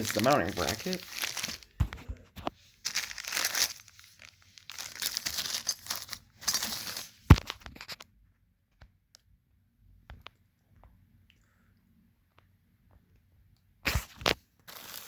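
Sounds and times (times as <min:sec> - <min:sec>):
packing material rustling: 0:00.0 - 0:08.0, 0:13.9 - 0:15.0.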